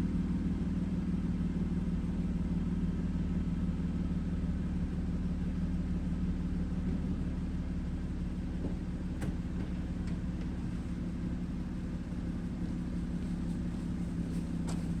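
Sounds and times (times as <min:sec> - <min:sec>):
car engine idling: 0:07.4 - 0:15.0.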